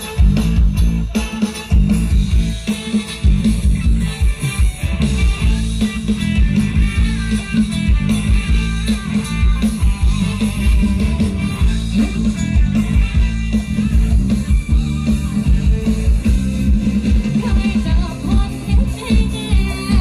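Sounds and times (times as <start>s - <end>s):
band music over loudspeakers: 0.0s - 20.0s.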